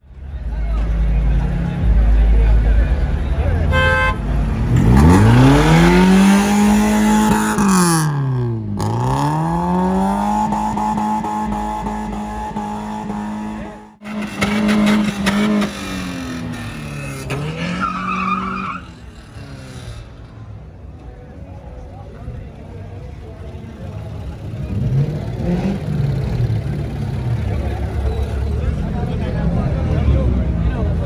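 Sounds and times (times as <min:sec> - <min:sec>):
car engine revving hard: 0:03.7 - 0:20.4, 0:24.2 - 0:30.7.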